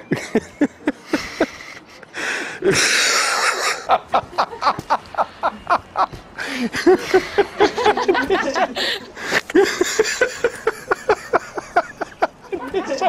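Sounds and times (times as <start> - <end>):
wheezing breath: 1.1 - 3.9, 6.4 - 6.8
person laughing: 2.6 - 13.0.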